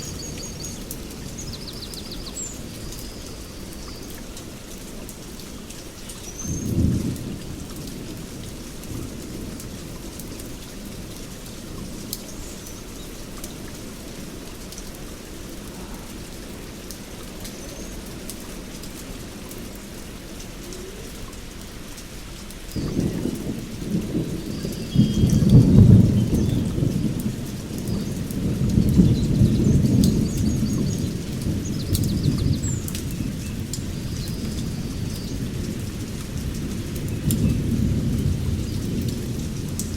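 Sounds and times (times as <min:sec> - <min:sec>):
heavy rain: 0:00.0 - 0:39.9
rolling thunder: 0:22.7 - 0:39.9.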